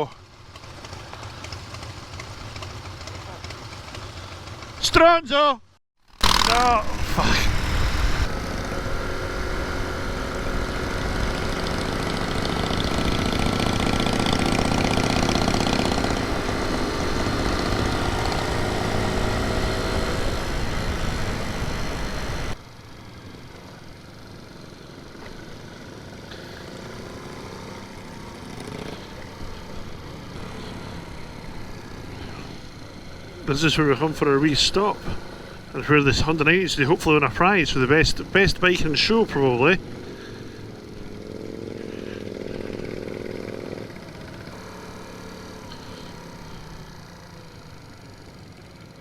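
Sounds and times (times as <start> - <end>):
motorcycle engine running: 0.0 - 5.2, 6.0 - 49.0
wind and road rush: 6.2 - 22.7.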